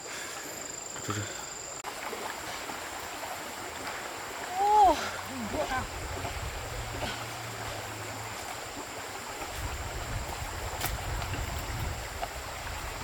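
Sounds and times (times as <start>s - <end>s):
stream rushing: 0.0s - 13.0s
wind rumble on microphone: 5.7s - 13.0s.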